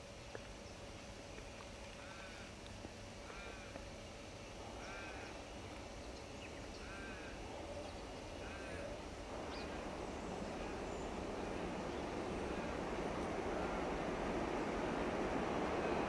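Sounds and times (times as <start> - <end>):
bird crow-like calls: 2.0 - 2.5, 3.2 - 3.7, 4.7 - 5.4, 6.7 - 9.8
distant diesel locomotive rumble: 2.0 - 16.0.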